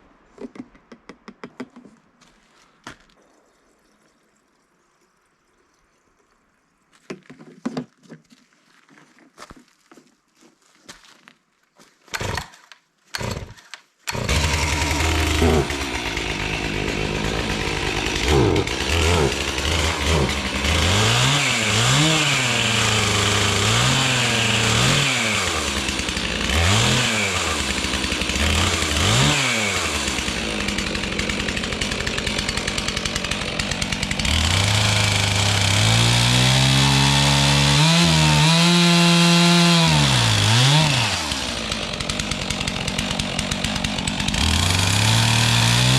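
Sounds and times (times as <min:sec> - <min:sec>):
chainsaw revving: 0:12.1 - 0:45.9.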